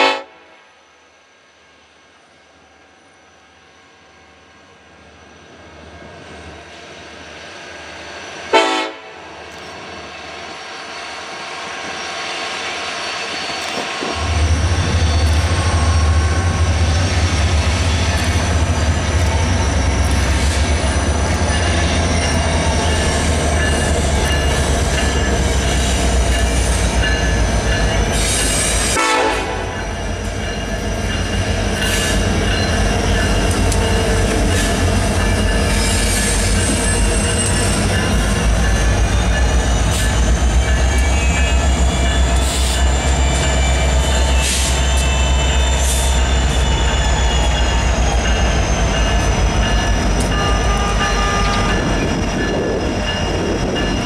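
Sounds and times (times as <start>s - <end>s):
train horn blast: 0.0s - 0.7s, 8.5s - 9.2s, 28.9s - 29.8s, 50.3s - 51.8s
freight train cars rolling: 3.1s - 54.0s
locomotive engine rumble: 13.7s - 54.0s.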